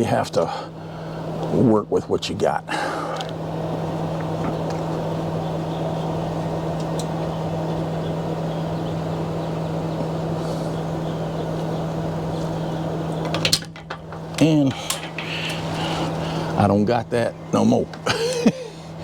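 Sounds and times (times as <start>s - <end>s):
motor droning: 0.0s - 19.0s.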